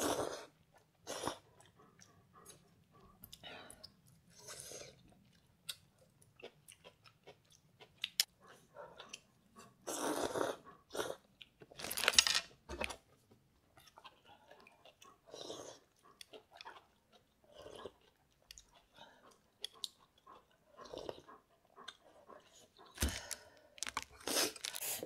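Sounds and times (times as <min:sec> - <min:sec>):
slurping noodles: 0:00.0 - 0:01.4, 0:09.8 - 0:11.2
chewing: 0:00.0 - 0:11.8, 0:12.8 - 0:25.0.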